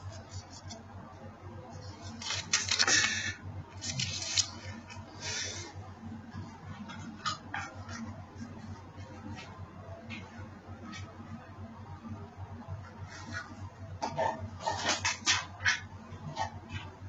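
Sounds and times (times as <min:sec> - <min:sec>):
rustling handling noise: 0:01.7 - 0:05.1.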